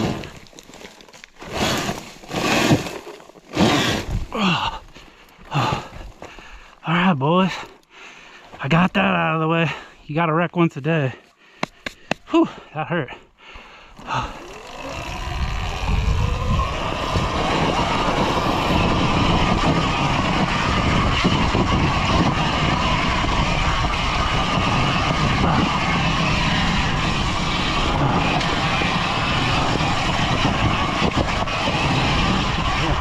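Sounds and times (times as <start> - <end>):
electric motor whine: 13.9 - 33.0
loud rushing noise: 14.9 - 33.0.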